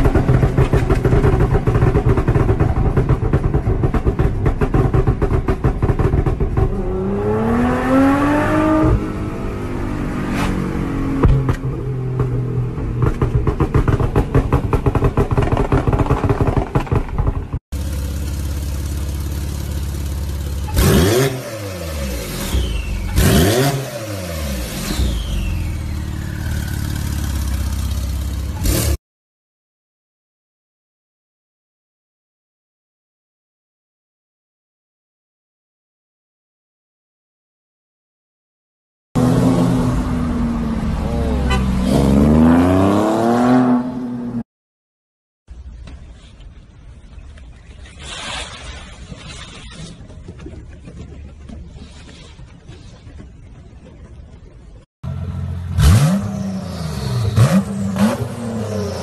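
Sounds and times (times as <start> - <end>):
car engine idling and blipped: 0.0 - 29.0, 39.2 - 42.6, 49.9 - 59.0
car engine revving and accelerating: 4.2 - 12.3, 20.7 - 27.4, 39.2 - 44.4, 55.1 - 59.0.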